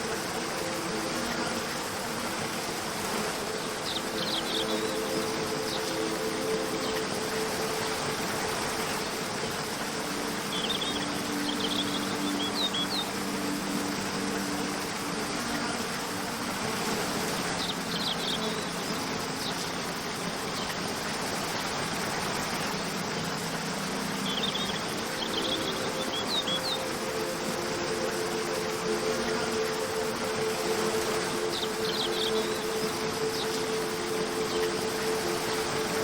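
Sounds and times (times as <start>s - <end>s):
soft held music tones: 0.0s - 36.0s
waterfall rushing: 0.0s - 36.0s.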